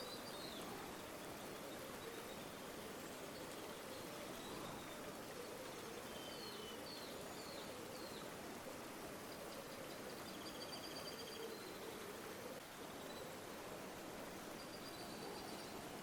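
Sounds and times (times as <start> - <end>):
flowing river water: 11.6 - 16.0.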